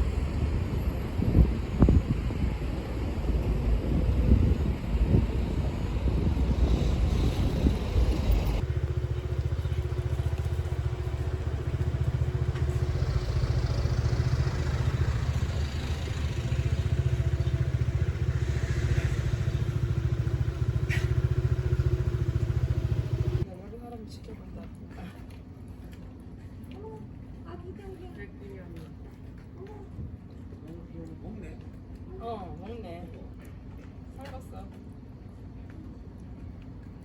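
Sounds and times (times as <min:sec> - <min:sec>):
low engine drone: 0:00.0 - 0:23.4.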